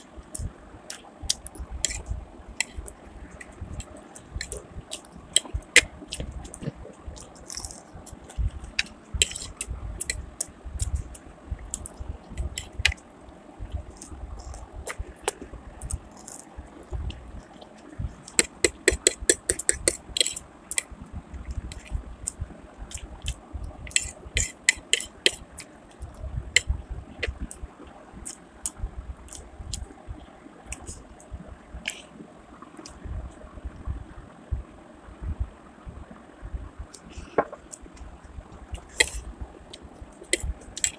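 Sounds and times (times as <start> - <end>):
person chewing and smacking: 0.2 - 13.0, 13.7 - 20.9, 21.5 - 27.6, 30.7 - 31.0, 37.0 - 40.9.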